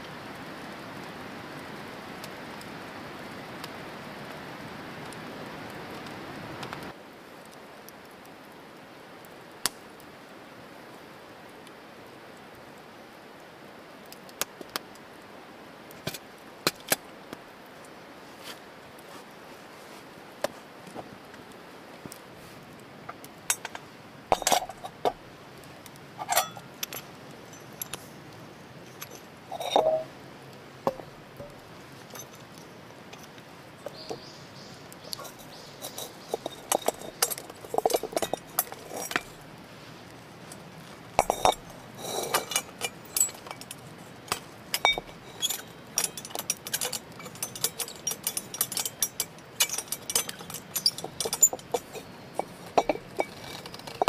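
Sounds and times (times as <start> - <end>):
faint hiss: 0.0 - 54.0
cookware and utensils clinking: 23.5 - 25.2, 26.2 - 28.0, 28.9 - 30.1, 35.1 - 39.4, 41.2 - 54.0.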